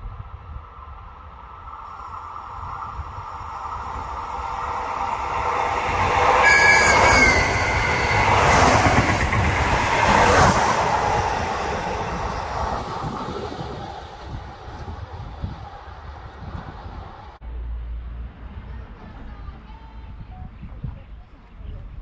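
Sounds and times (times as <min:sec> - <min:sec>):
electric train passing: 0:00.0 - 0:19.4
high-pitched double tone: 0:03.3 - 0:09.0.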